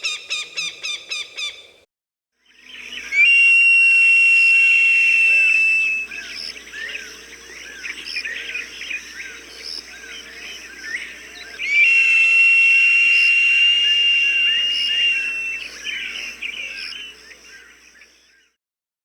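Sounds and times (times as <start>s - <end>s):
falcon screaming: 4.4s - 6.1s, 11.6s - 16.3s
short chirping calls: 11.4s - 17.1s.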